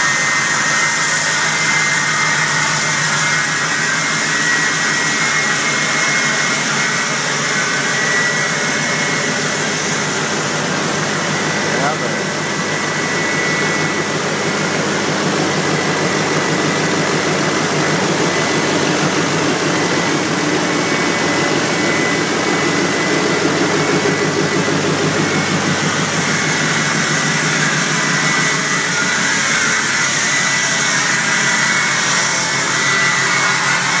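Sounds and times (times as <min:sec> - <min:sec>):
engine running: 0:00.0 - 0:34.0
thin steady whine: 0:00.0 - 0:34.0.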